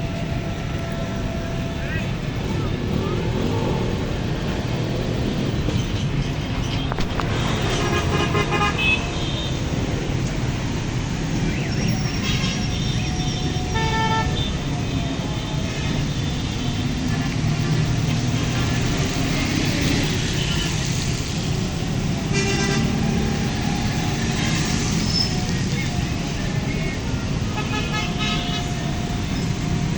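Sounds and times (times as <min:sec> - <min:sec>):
road traffic: 0:00.0 - 0:29.9
vehicle horns honking: 0:07.4 - 0:09.6, 0:12.0 - 0:14.6, 0:22.2 - 0:23.4, 0:27.5 - 0:28.8.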